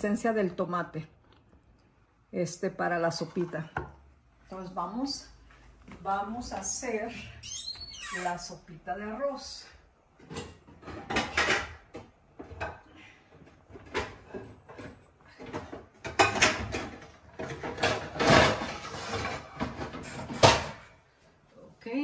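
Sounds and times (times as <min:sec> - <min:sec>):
cookware knocking and clattering: 0:10.2 - 0:12.8, 0:13.7 - 0:20.8.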